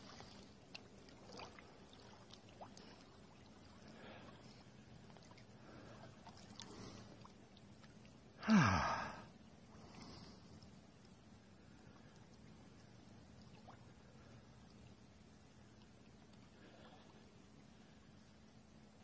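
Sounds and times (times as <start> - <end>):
river water trickling: 0.0 - 19.0
person gasping: 8.4 - 9.3.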